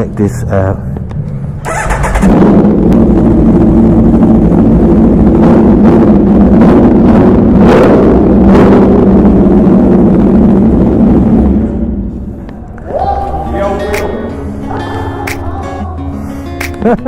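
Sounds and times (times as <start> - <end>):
motorcycle engine starting and idling: 1.2 - 12.5.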